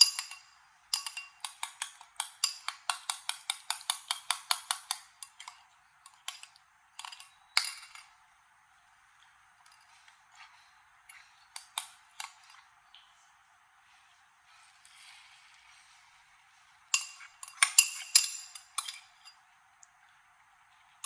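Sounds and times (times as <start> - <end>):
small hard objects clicking: 1.0 - 8.1.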